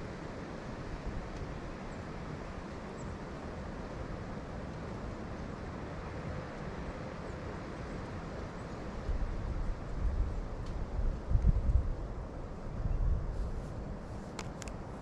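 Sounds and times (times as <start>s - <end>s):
wind buffeting the microphone: 9.0s - 15.0s.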